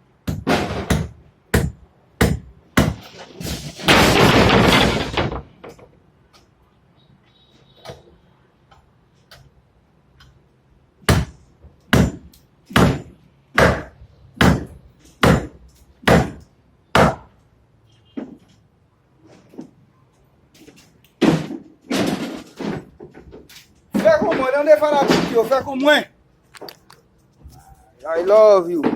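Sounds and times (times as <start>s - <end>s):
hammer striking wood: 0.2s - 3.1s, 11.1s - 17.3s.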